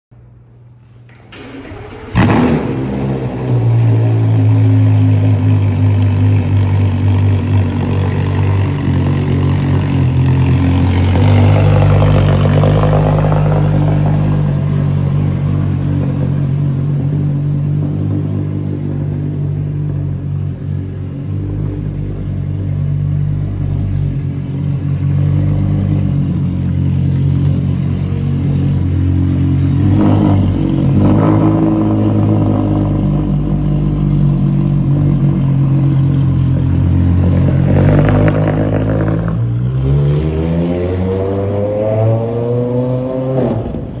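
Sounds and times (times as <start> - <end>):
sports car engine idling high: 0.2 - 40.4
engine revs climbing: 0.8 - 20.0, 29.3 - 44.0.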